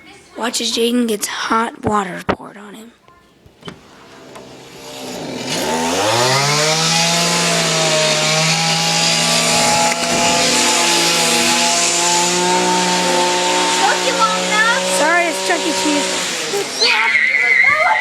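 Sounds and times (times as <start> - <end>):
small electric motor whirring: 4.4 - 17.6.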